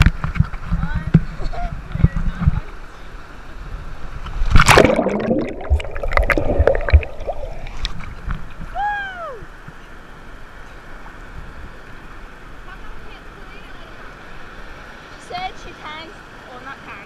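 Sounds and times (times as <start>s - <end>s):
sea water sloshing and gurgling: 3.8s - 8.7s
water splash: 4.3s - 8.6s.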